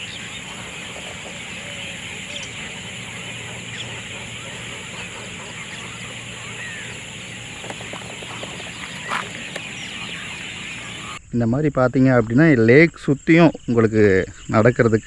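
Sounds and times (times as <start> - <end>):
chorus of bird chirps and calls: 0.0 - 11.2
steady high whine: 0.0 - 11.3.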